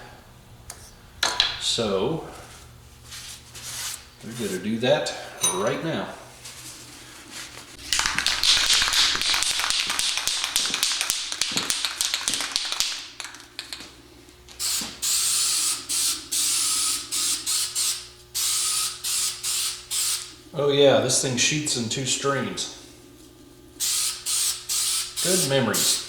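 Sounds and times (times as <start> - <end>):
spray can ball rattling: 7.8 - 13.7
spray paint hissing: 14.6 - 20.3, 23.8 - 26.0.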